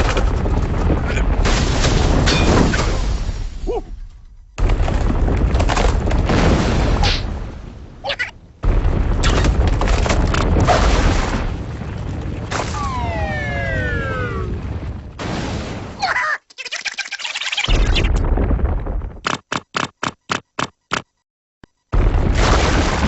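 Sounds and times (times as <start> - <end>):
deep rumbling and crashing: 0.0 - 16.0, 17.7 - 19.2.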